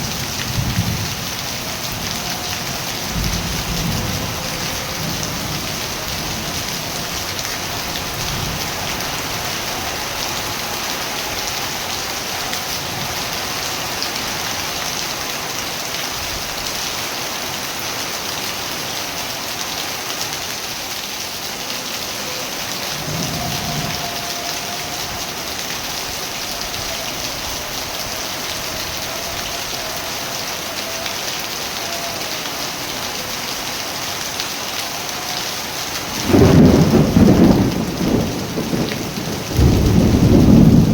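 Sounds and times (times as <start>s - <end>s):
heavy rain falling: 0.0s - 40.9s
distant thunder rumble: 36.2s - 40.9s.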